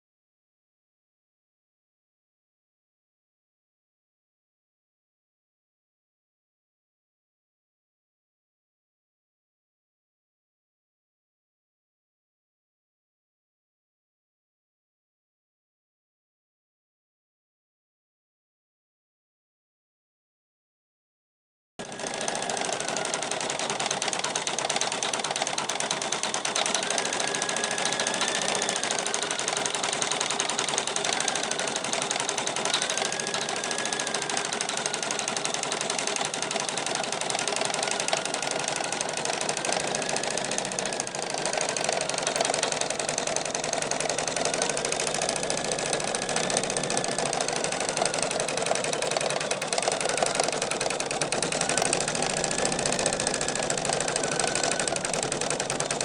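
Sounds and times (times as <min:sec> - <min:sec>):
embroidery machine needle clatter: 0:21.8 - 0:56.0.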